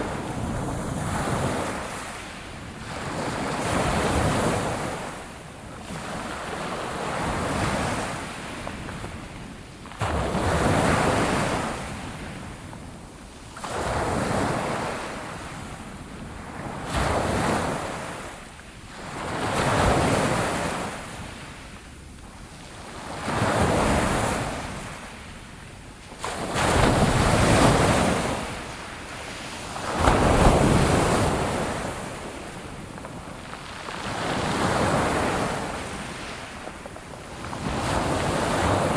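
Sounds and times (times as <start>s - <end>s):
wind noise on microphone: 0.0s - 38.9s
waves breaking on shore: 26.0s - 38.9s.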